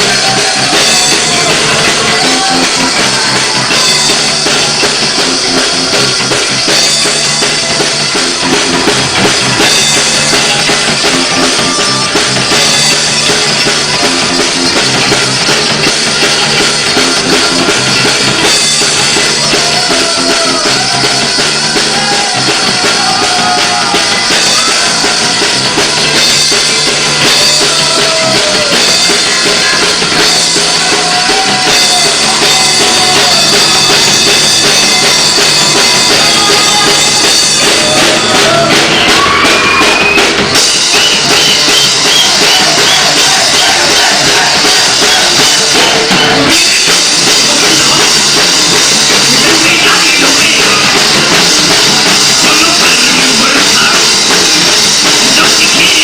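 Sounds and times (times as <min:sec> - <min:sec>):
drum kit: 0:00.0 - 0:56.0
rock band playing live: 0:00.0 - 0:56.0.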